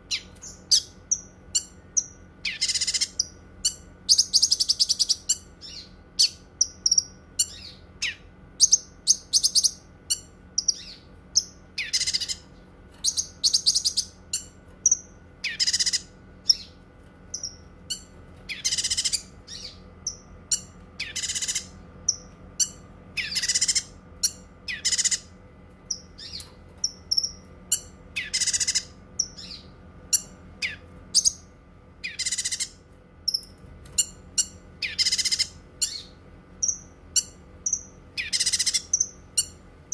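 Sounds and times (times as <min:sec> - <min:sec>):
harsh high bird calls: 0:00.0 - 0:25.3, 0:25.9 - 0:39.6.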